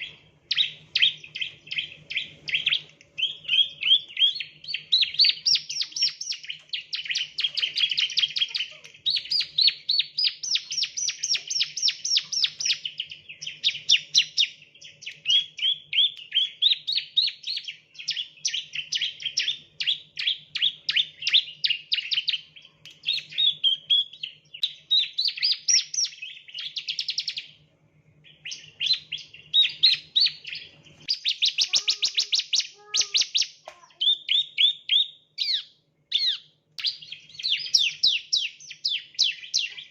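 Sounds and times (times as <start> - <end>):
bird singing fast high chirps: 0.0 - 27.5, 28.2 - 39.9.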